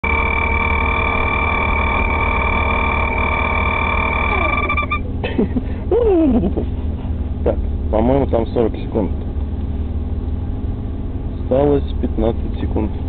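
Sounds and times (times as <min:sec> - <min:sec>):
high whine: 0:00.0 - 0:05.1.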